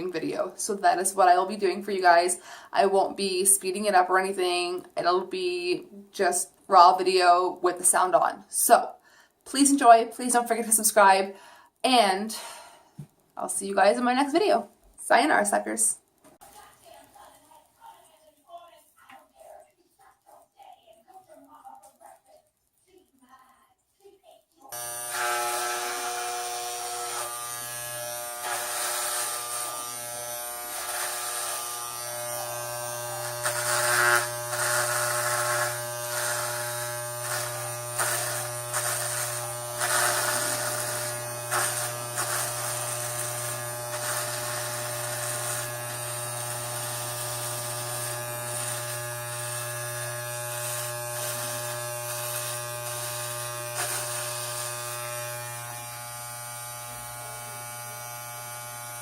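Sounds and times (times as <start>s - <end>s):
electric hair clippers buzzing: 24.7s - 59.0s.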